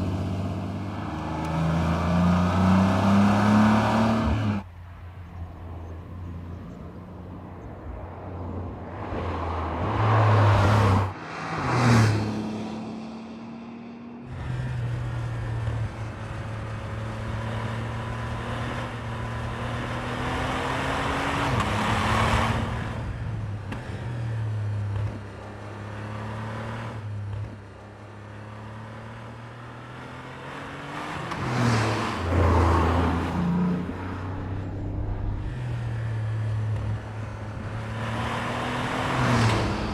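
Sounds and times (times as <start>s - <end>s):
car engine accelerating: 0.0s - 4.7s, 28.5s - 39.9s.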